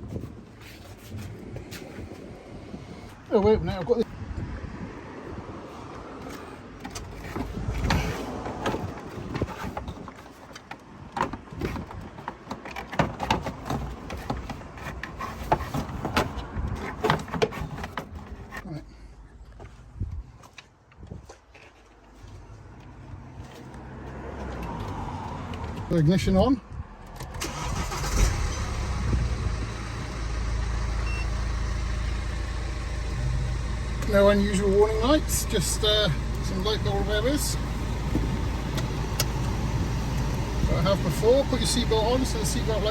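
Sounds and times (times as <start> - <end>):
diesel engine starting and idling: 27.0 - 42.9.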